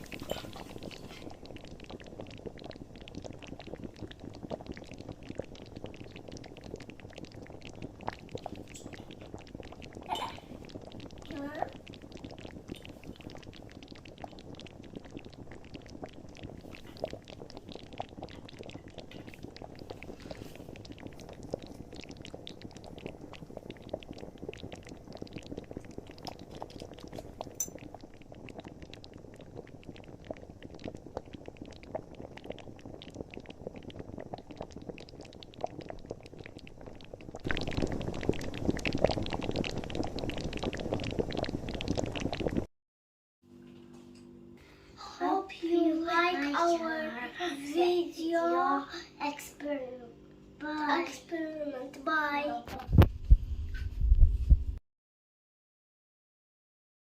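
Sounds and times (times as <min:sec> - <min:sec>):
bubbles fizzing in a bottle: 0:00.0 - 0:42.7, 0:45.0 - 0:50.0.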